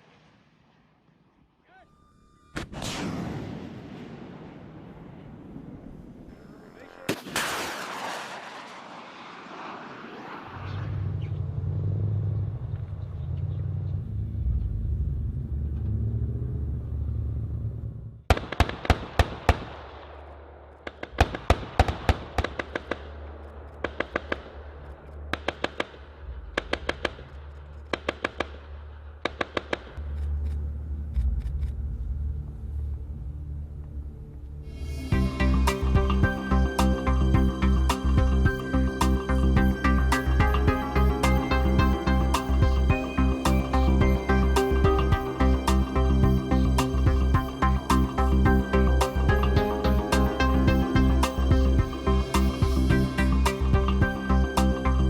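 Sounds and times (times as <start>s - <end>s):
low engine rumble: 10.2s - 18.3s, 30.0s - 55.0s.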